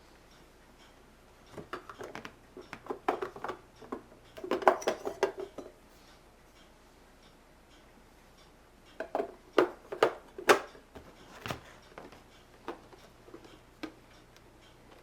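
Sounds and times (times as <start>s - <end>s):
plastic parts knocking and clacking: 1.5s - 5.8s, 9.0s - 14.0s.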